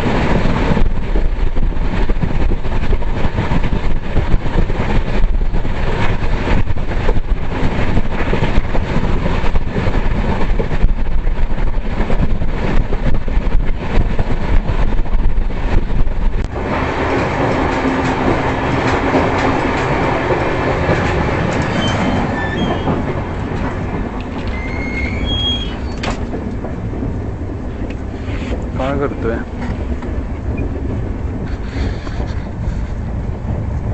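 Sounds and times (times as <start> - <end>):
train wheels clattering on rails: 0.0 - 33.9
high-pitched wheel squeals: 21.6 - 23.0, 24.4 - 26.2.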